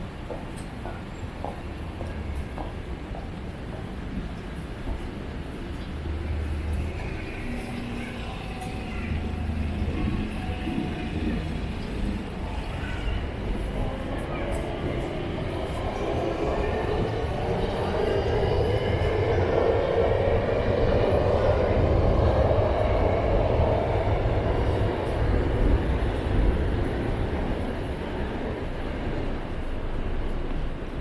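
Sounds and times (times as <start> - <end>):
train passing rumble: 0.0 - 31.0.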